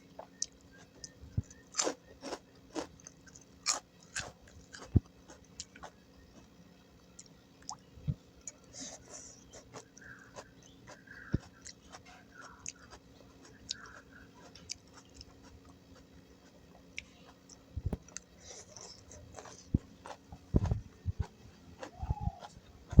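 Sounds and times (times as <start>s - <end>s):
close chewing: 0.0s - 6.6s, 8.4s - 23.0s.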